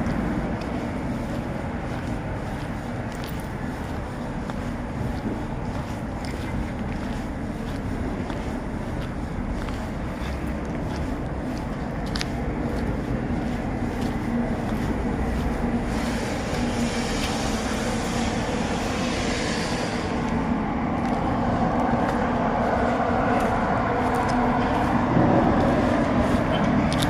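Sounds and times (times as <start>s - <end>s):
diesel engine running: 0.0s - 27.0s
hissing noise: 15.9s - 20.4s.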